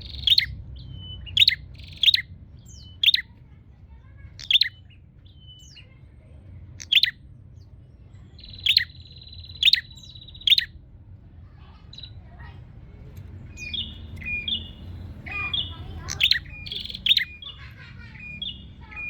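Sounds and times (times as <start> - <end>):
bird chirping: 0.0 - 3.4, 4.4 - 6.0, 6.8 - 10.8, 11.7 - 12.3, 13.1 - 19.0
buzzing bird trill: 3.0 - 3.3, 6.8 - 7.2, 8.6 - 10.7, 13.6 - 19.0.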